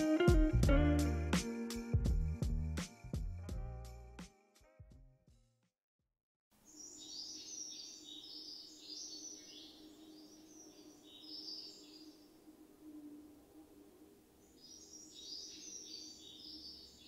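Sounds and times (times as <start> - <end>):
background music: 0.0 - 4.9
faint small birds chirping: 6.6 - 17.0.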